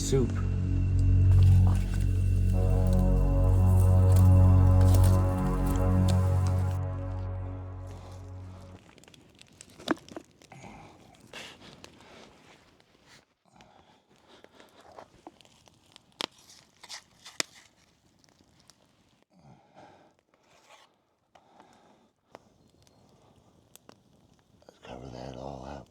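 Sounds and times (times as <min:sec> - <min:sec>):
hands packing wet clay: 0:14.0 - 0:19.2.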